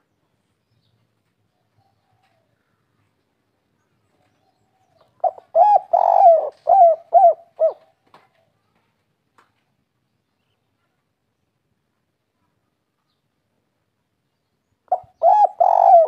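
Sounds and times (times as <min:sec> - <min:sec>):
dove cooing: 0:05.2 - 0:08.0, 0:14.9 - 0:16.0.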